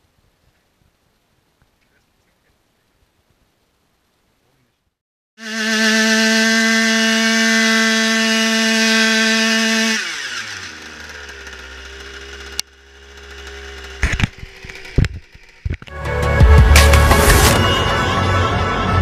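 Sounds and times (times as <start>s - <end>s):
scooter engine revving and idling: 5.4s - 16.0s.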